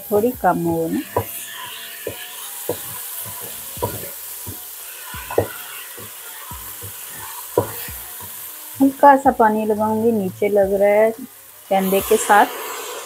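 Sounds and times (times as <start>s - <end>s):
paste sizzling in hot oil: 0.0s - 13.0s
wooden spatula scraping a pot: 0.9s - 9.0s.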